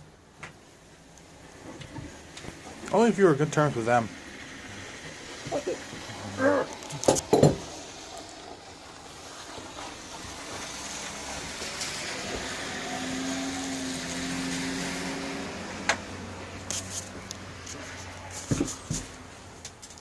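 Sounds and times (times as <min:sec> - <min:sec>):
sharp knocks: 0:07.1 - 0:07.7
vehicle passing by: 0:07.6 - 0:19.6.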